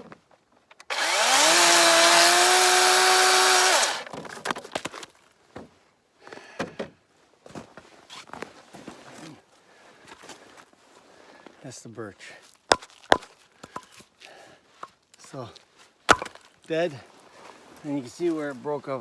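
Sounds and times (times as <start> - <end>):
cordless chainsaw whining: 0.8 - 4.2.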